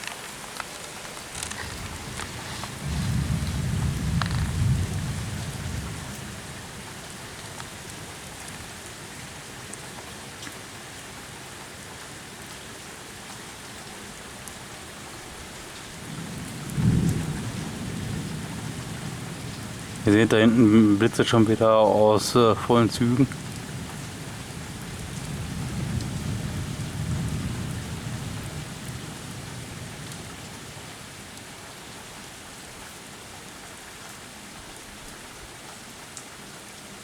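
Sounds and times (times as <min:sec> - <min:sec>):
steady rain falling: 0:00.0 - 0:37.0
low roll of thunder: 0:01.6 - 0:06.9, 0:16.0 - 0:21.6, 0:22.5 - 0:30.8.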